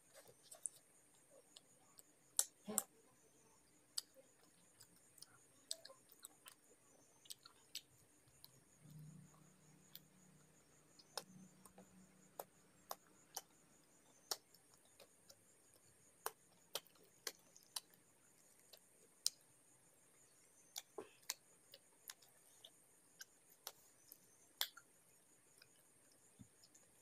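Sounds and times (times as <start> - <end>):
wet chewing and lip smacks: 4.0 - 8.6, 11.0 - 19.4.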